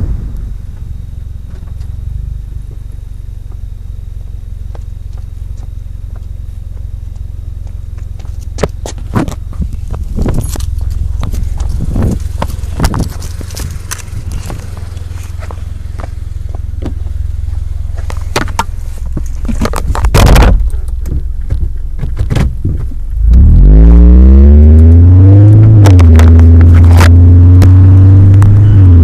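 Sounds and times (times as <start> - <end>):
low hum: 0.0 - 29.0
car engine revving loud: 23.2 - 29.0.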